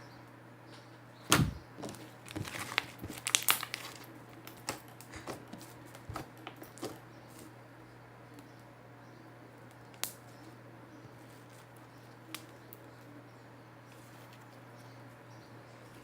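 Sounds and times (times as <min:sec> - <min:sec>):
slime popping and crackling: 0:02.3 - 0:05.4.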